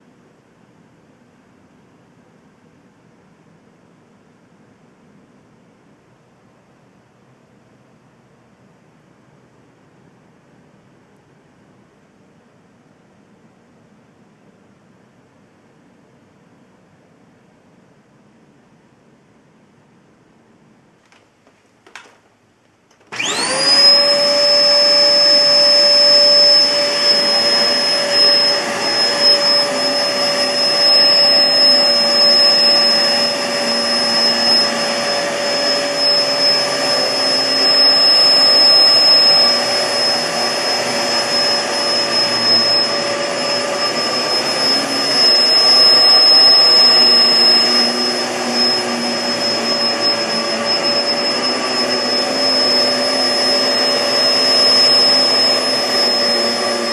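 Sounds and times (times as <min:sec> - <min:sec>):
upright vacuum motor whine: 0:22.9 - 0:56.9.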